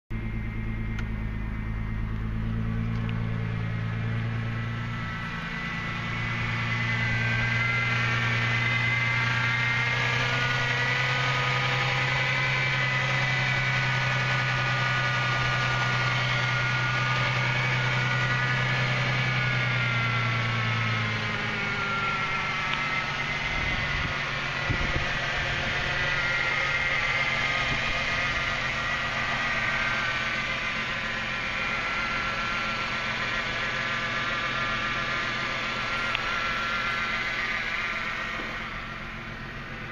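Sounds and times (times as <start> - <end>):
car engine idling: 0.1 - 39.9
low hum: 0.1 - 39.9
thin wavering whine: 0.1 - 39.9.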